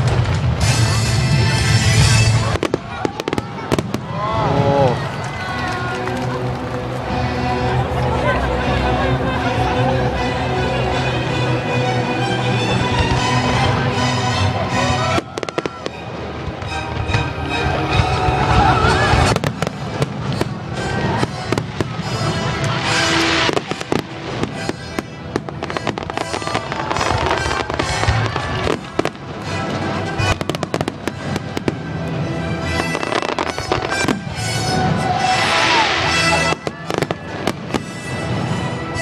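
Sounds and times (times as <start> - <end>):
fireworks bursting and crackling: 0.0 - 9.5, 12.5 - 39.0
music playing: 0.0 - 39.0.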